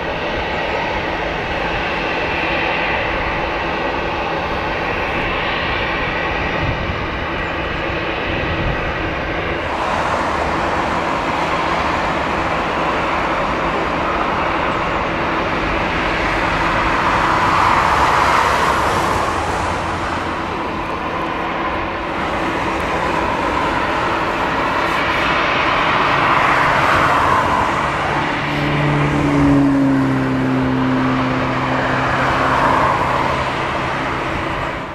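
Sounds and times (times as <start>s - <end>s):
vehicle engine noise: 0.0s - 34.9s
vehicle passing by: 9.6s - 34.9s.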